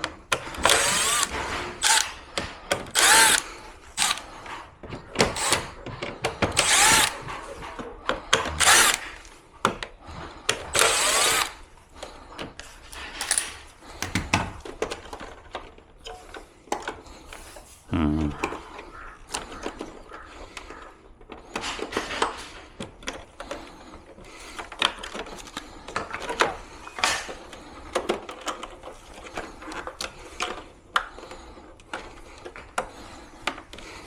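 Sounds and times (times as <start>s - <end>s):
cordless drill running: 0.4s - 4.5s, 5.2s - 7.3s, 8.4s - 9.2s, 10.5s - 11.6s, 13.2s - 13.6s
handling clicks and knocks: 12.4s - 17.0s.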